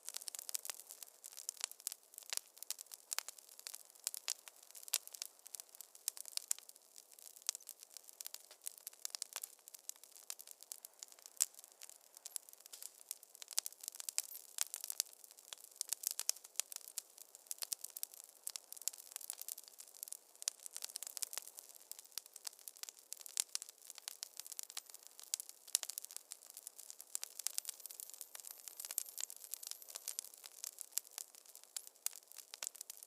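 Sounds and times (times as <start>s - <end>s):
fire pops and snaps: 0.0s - 33.0s.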